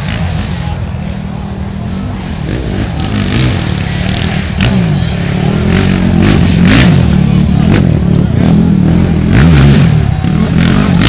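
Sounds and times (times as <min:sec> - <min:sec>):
racing atv engines revving: 0:00.0 - 0:11.0.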